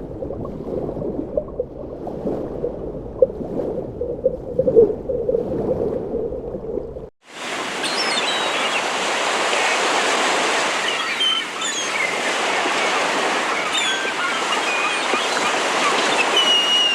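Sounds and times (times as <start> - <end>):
low rumbling noise: 0.0 - 7.1.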